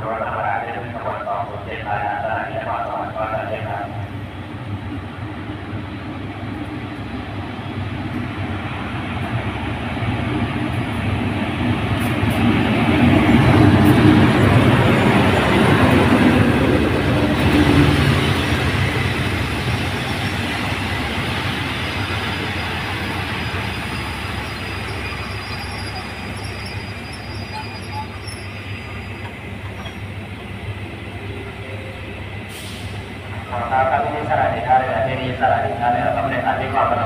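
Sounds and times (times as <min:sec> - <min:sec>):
passenger coaches rolling: 0:00.0 - 0:37.0
locomotive rumbling past: 0:03.6 - 0:37.0
faint brake squeals: 0:22.0 - 0:30.1.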